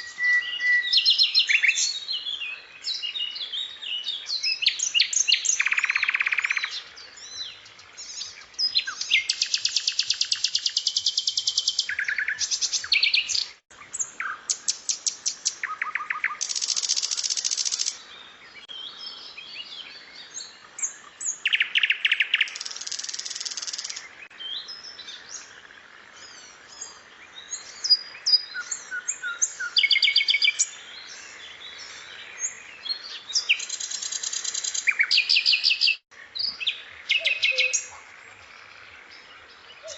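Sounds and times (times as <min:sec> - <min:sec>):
bird chirps and whistles: 0:00.0 - 0:01.9
fast rattling bird trills: 0:14.6 - 0:18.0, 0:22.2 - 0:24.0.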